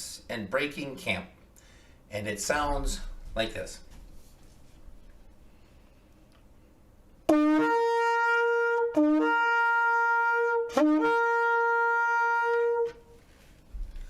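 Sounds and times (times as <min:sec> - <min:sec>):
shofar blasts: 0:07.3 - 0:13.2.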